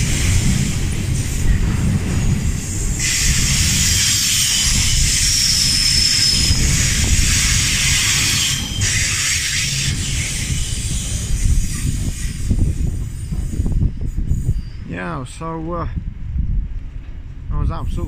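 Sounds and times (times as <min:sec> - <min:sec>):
train wheels rumbling on rail: 0:00.0 - 0:18.0
high squeal: 0:02.7 - 0:15.0.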